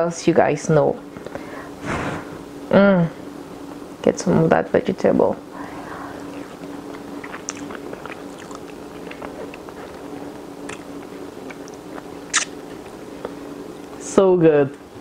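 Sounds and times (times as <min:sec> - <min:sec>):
steady low hum: 0:00.0 - 0:15.0
person chewing food: 0:06.1 - 0:14.0
wet mouth clicks: 0:06.4 - 0:10.0, 0:10.6 - 0:12.6.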